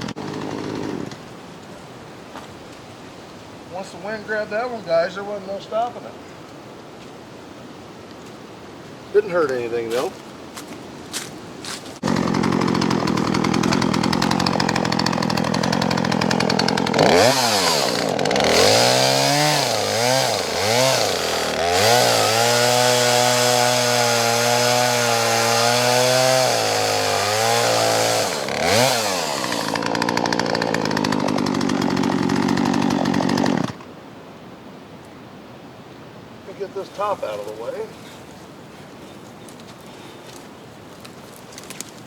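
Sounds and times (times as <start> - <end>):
chainsaw revving and idling: 0.0 - 1.2, 11.6 - 33.9.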